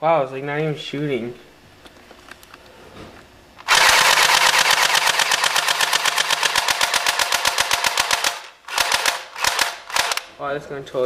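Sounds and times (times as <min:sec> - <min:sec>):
airsoft rifle full-auto burst: 0:03.6 - 0:10.3.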